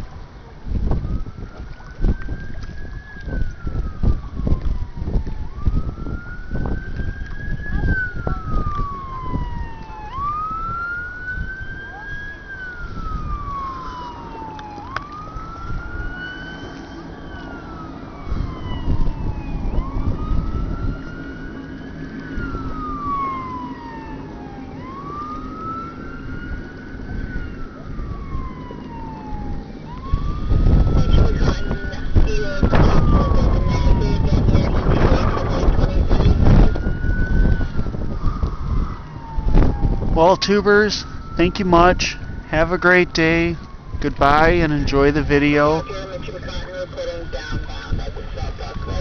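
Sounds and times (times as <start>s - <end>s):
siren wailing: 0.2s - 49.0s
low rumble with buffeting thumps: 0.6s - 10.7s, 29.4s - 40.2s.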